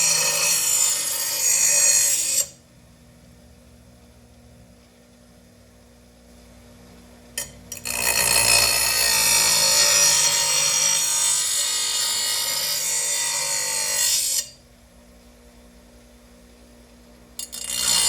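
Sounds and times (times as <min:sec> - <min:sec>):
power tool grinding steel blade: 0:00.0 - 0:02.6, 0:07.4 - 0:14.6, 0:17.4 - 0:18.0.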